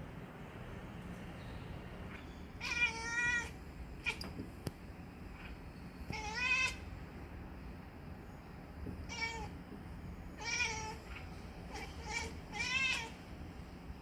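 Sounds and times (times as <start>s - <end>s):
wavering meow calls: 2.6s - 4.2s, 6.1s - 6.8s, 9.1s - 9.5s, 10.4s - 13.2s.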